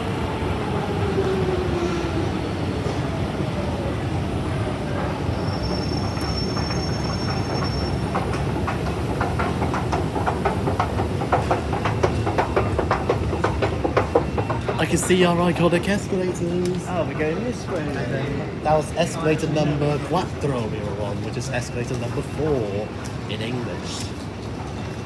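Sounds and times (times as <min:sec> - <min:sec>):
train rumbling: 0:00.0 - 0:25.0.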